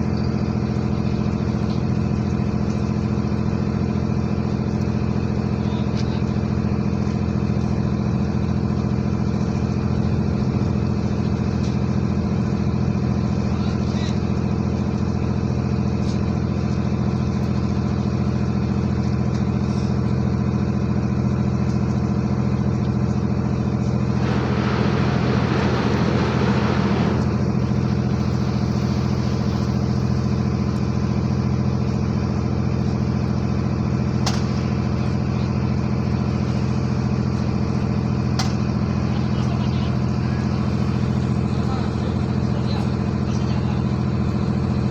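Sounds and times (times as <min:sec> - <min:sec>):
ship engine droning: 0:00.0 - 0:44.9
loud rushing noise: 0:24.1 - 0:30.6.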